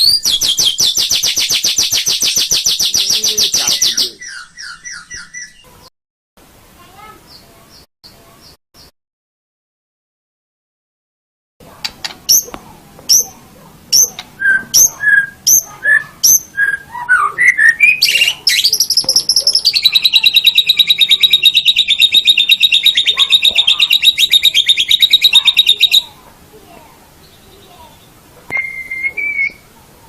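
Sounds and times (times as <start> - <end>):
bird singing whistled notes: 0.0 - 5.6, 14.0 - 26.1, 27.2 - 29.7
bird rapid trill: 0.0 - 5.7, 13.1 - 26.2.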